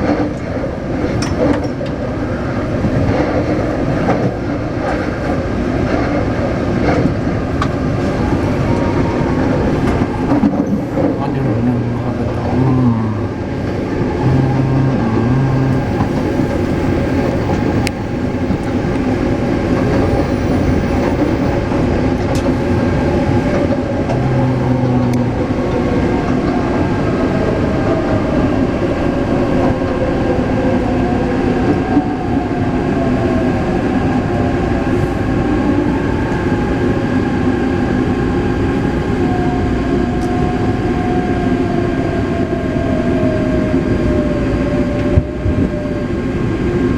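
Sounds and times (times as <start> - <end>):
train wheels rumbling on track: 0.0 - 46.9
traction motor whine: 8.1 - 26.4.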